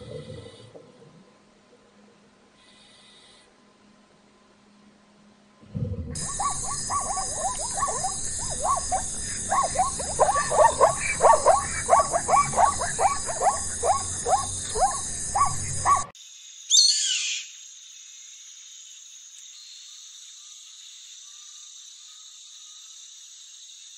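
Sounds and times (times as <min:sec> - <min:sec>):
wild animal calling: 0:06.2 - 0:16.1
steady high hiss: 0:06.2 - 0:23.9.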